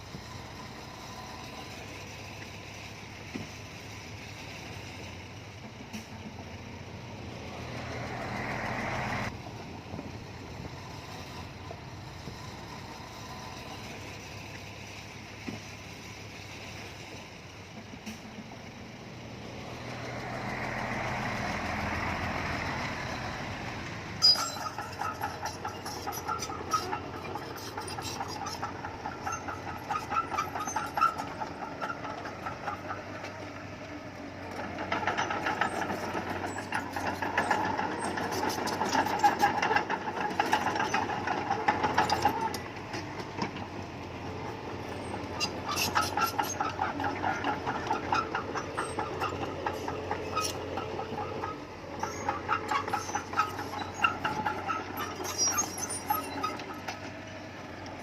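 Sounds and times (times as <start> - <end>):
bulldozer diesel engine under load: 0.0 - 58.0
metallic clattering and clanking: 24.2 - 33.4, 34.5 - 43.8, 44.4 - 58.0.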